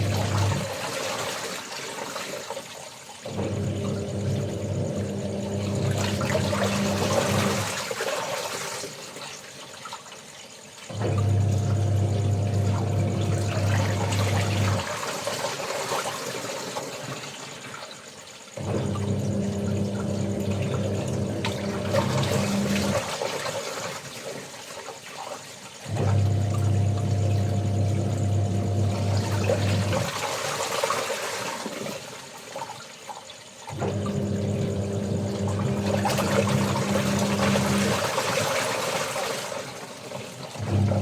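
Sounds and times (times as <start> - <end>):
washing machine motor humming: 0.0 - 0.8, 3.3 - 7.8, 10.9 - 15.4, 18.6 - 23.2, 25.9 - 30.2, 33.7 - 38.6, 40.5 - 41.0
water sloshing and swishing: 0.0 - 41.0.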